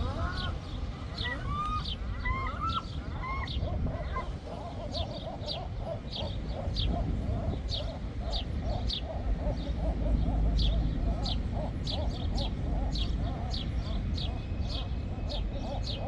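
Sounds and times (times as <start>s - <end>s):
gulls calling: 0.0s - 16.0s
steady low rumble: 5.6s - 16.0s.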